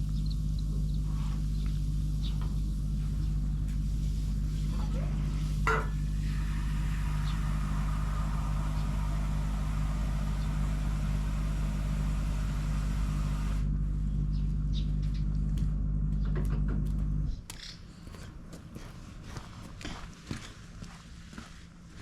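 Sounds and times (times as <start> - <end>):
hissing: 0.0 - 13.7
motor humming: 0.0 - 17.4.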